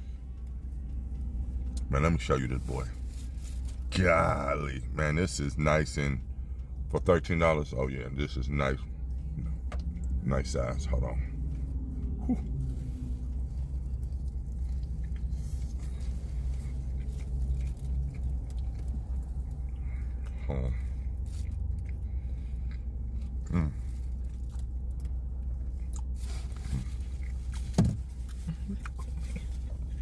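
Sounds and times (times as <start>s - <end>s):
car cabin engine hum: 0.0s - 30.0s
man chewing food: 8.8s - 10.2s, 11.3s - 30.0s.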